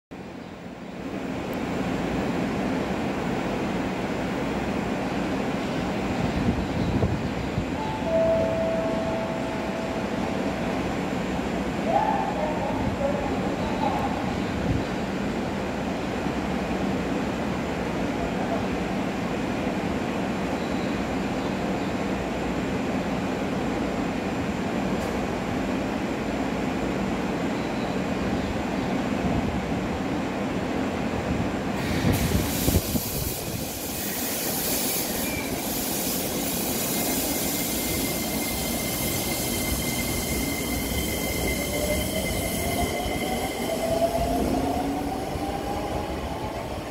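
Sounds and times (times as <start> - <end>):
rail noise: 0.1 - 46.9
electric train humming: 0.6 - 20.4, 29.6 - 46.9.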